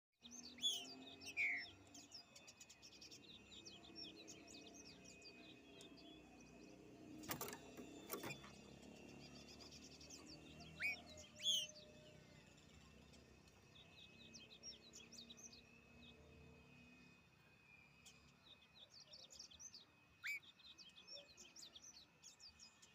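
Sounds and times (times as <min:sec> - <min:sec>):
small birds chirping: 0:00.2 - 0:22.9
bird singing whistled phrases: 0:20.2 - 0:20.5.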